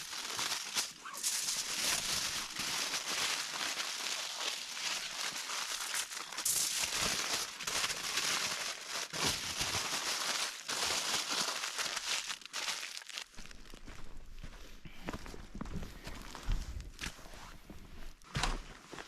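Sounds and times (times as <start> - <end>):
crinkling crackling rustle: 0.0 - 14.6.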